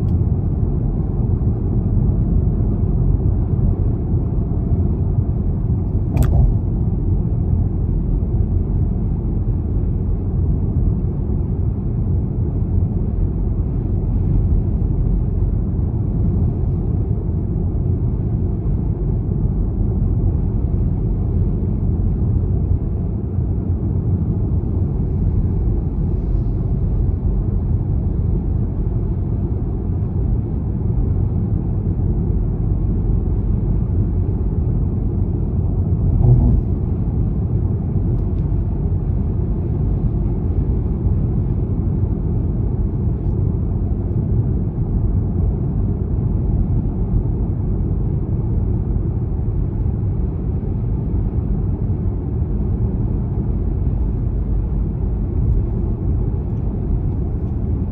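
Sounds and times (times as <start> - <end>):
diesel engine and road noise: 0.0 - 57.9
short click: 5.9 - 6.6.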